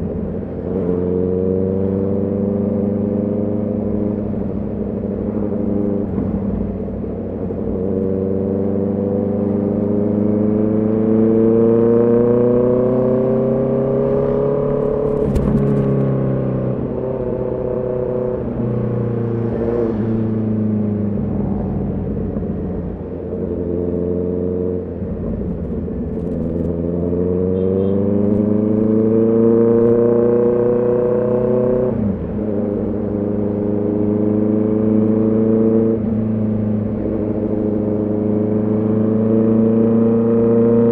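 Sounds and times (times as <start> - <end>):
motorcycle engine pulling under throttle: 11.3 - 16.2.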